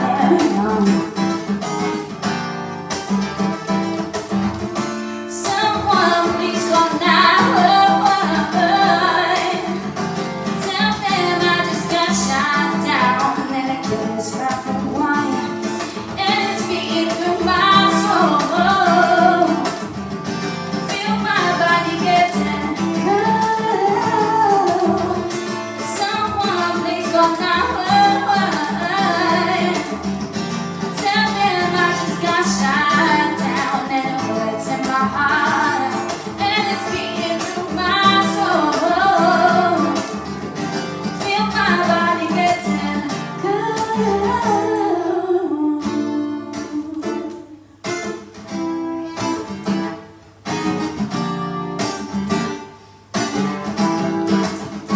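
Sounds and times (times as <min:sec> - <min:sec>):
person singing: 0:00.0 - 0:01.4, 0:05.3 - 0:09.9, 0:10.5 - 0:20.0, 0:20.9 - 0:30.1, 0:30.9 - 0:40.3, 0:41.2 - 0:47.7
acoustic guitar: 0:00.0 - 0:54.9.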